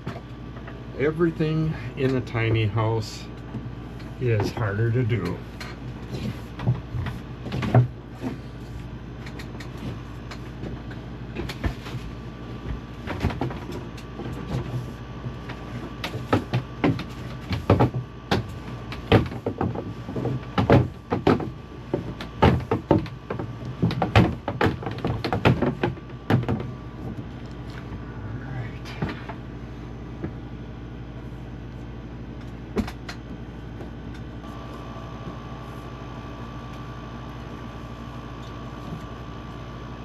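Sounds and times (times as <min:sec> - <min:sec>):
steady low hum: 0:00.0 - 0:40.0
pipe knocking on wooden studs: 0:16.0 - 0:26.7.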